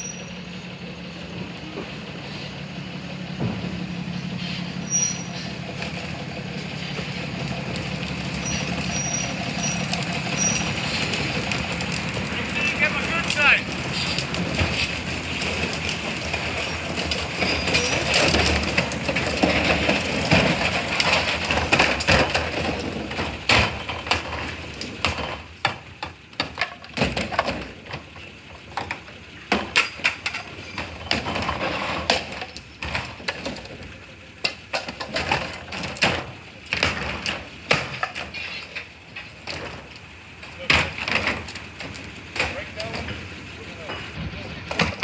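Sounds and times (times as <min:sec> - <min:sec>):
steady mechanical noise: 0:00.0 - 0:45.0
sharp knocks and clattering: 0:03.1 - 0:45.0.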